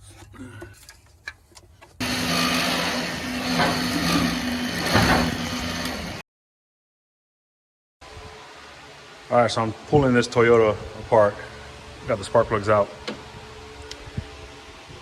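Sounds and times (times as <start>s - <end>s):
motor running loudly: 2.0s - 6.2s.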